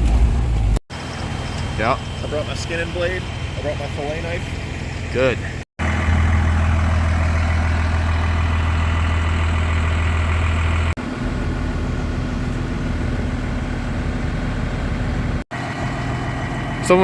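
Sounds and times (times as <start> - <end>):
truck engine droning: 0.0 - 17.0.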